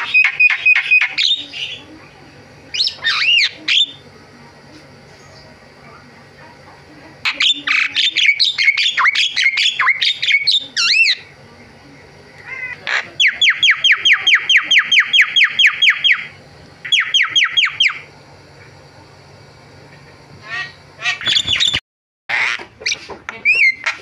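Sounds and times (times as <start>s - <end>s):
bird singing whistles and squawks: 21.1s - 21.8s.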